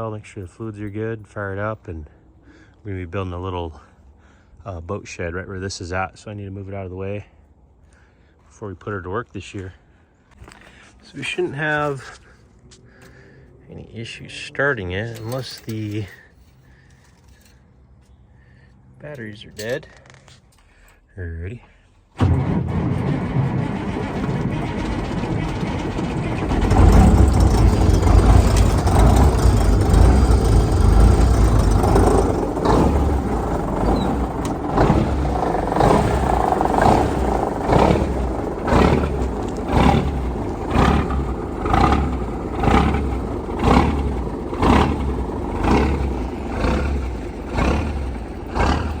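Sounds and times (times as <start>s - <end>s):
diesel engine cranking: 9.6s - 21.0s, 22.0s - 49.0s
diesel truck engine running: 22.2s - 49.0s.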